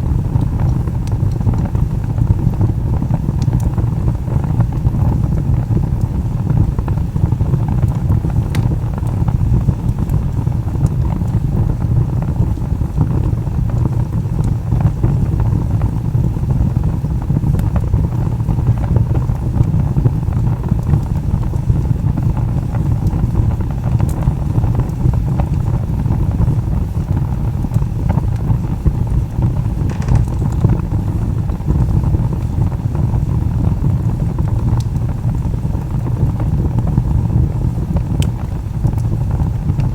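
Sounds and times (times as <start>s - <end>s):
log fire burning: 0.0s - 39.9s
crackling wood pops: 7.8s - 9.2s, 29.4s - 31.7s.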